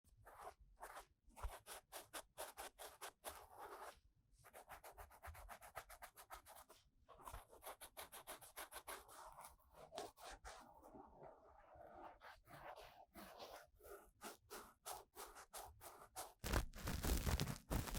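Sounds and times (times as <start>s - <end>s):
ear-cleaning tool scraping microphone: 16.4s - 17.9s.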